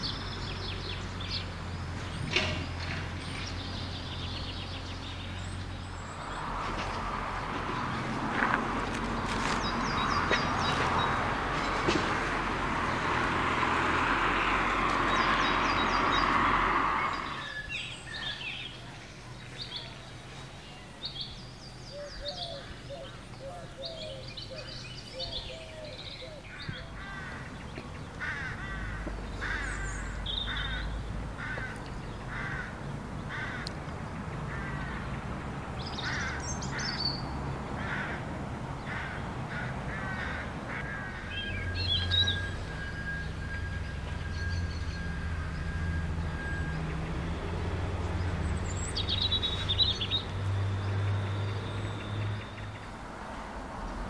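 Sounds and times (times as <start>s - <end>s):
birds singing: 0.0s - 53.1s.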